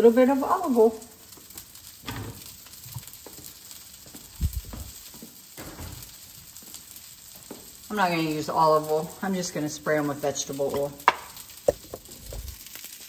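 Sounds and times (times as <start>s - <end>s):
chicken sizzling in a skillet: 0.0s - 13.0s
soft kitchen knocks: 5.6s - 6.1s.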